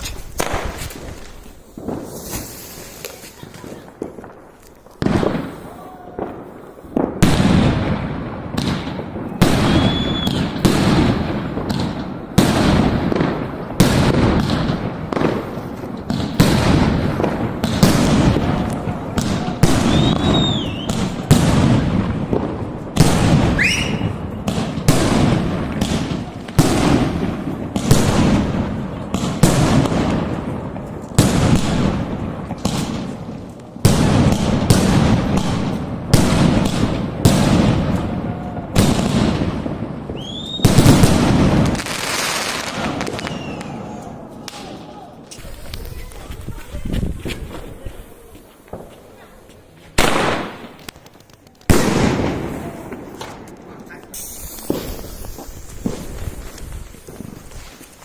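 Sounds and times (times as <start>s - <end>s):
fireworks whistles: 0.0s - 4.1s, 9.4s - 10.8s, 17.7s - 21.4s, 23.0s - 24.4s, 40.0s - 46.3s, 54.0s - 58.0s
fireworks bursting with bangs: 0.0s - 58.0s
fireworks crackling: 0.0s - 58.0s.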